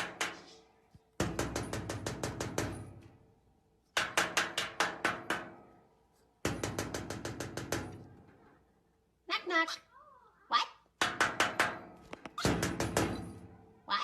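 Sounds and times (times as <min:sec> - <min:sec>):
rapid knocking with ringing tone: 0:01.2 - 0:03.0, 0:04.0 - 0:05.8, 0:06.4 - 0:08.1, 0:11.0 - 0:13.4.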